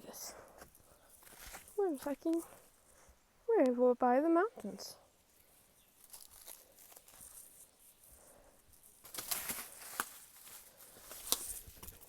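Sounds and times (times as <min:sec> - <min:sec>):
rustling: 0:00.3 - 0:03.2, 0:05.3 - 0:12.0.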